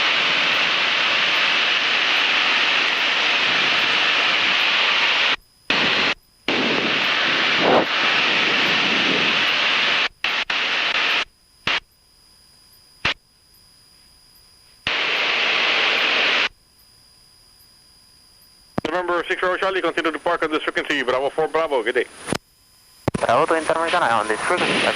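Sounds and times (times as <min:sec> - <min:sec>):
radio static hiss: 0:00.0 - 0:16.6, 0:18.7 - 0:24.9
radio clicks: 0:10.0 - 0:11.8, 0:18.8 - 0:19.0, 0:23.0 - 0:23.5.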